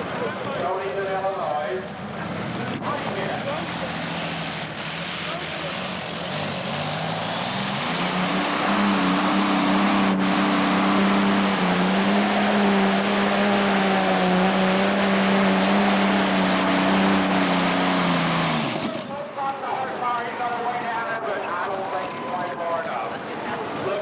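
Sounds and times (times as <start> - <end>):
tractor engine running at high revs: 1.9 - 20.8.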